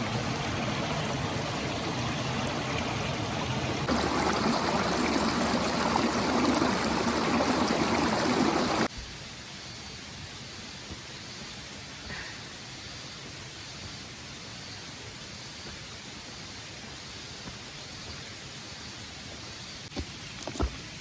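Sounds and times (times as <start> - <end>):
mountain stream running: 0.0 - 8.9, 19.9 - 21.0
steady hiss: 3.8 - 21.0.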